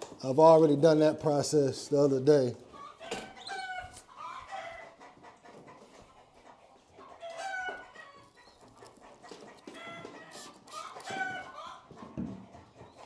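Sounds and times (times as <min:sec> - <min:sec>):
chickens squawking: 0:02.6 - 0:13.0.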